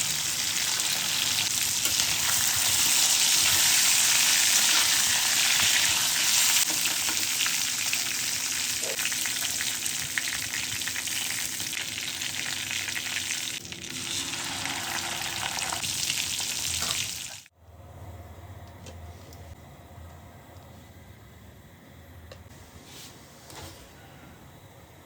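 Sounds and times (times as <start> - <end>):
food sizzling in hot oil: 0.0 - 17.5.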